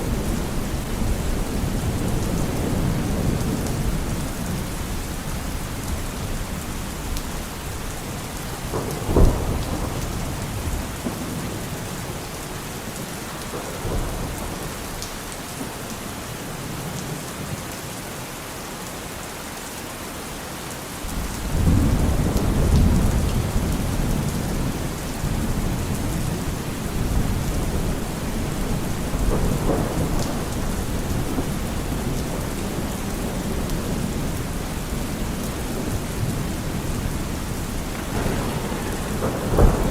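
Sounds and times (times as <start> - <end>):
low thunder rumble: 0.0 - 12.2, 21.1 - 39.9
sharp thunderclap: 8.7 - 11.4, 21.2 - 26.2, 27.0 - 34.4, 37.8 - 39.9
rain hissing: 21.1 - 39.9.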